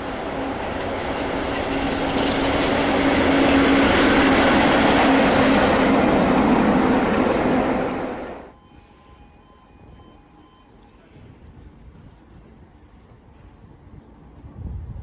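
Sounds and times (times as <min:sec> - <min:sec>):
train passing: 0:00.0 - 0:14.9
wheels clicking over rail joints: 0:00.1 - 0:06.2.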